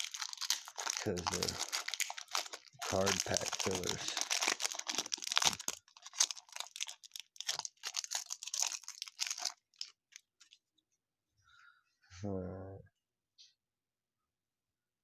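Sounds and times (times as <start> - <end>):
wrapper tearing and crinkling: 0.0 - 10.6.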